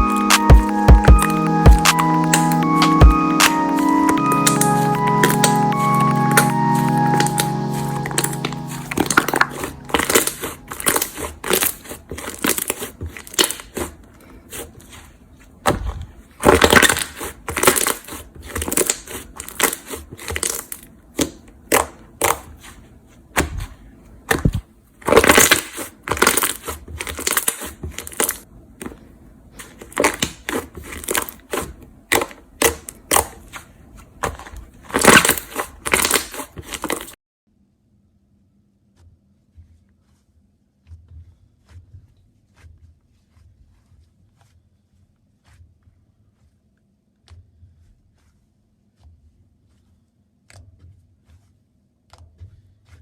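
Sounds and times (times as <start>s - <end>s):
slime squelching and popping: 0.0s - 15.0s, 15.7s - 29.0s, 29.6s - 37.2s.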